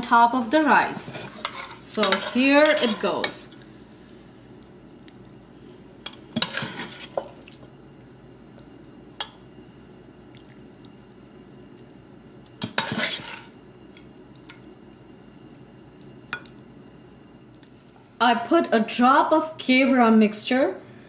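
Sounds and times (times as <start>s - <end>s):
metal spoon scraping a pot: 0.9s - 3.6s, 6.4s - 7.2s, 12.6s - 13.6s.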